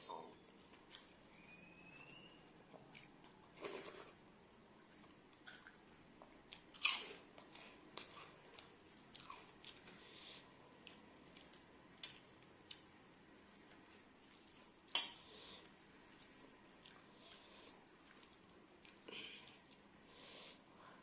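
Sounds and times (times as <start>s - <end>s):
person chewing crunchy food: 6.5s - 12.8s, 13.5s - 20.2s.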